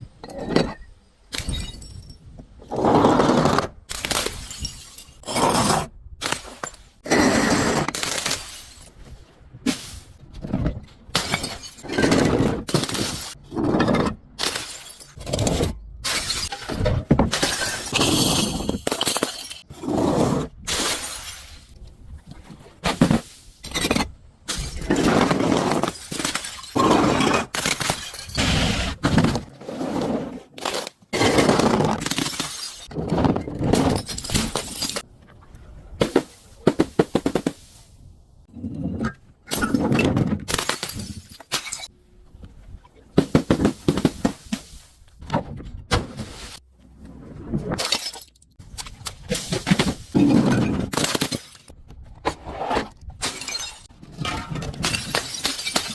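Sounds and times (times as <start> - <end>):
glass bottles breaking: 1.3 - 2.4, 3.9 - 5.6, 11.2 - 13.4, 14.4 - 15.3, 16.0 - 16.7, 17.3 - 19.6, 23.6 - 28.5, 31.2 - 32.9, 33.7 - 35.0, 39.5 - 41.9, 47.8 - 48.4, 53.2 - 55.9.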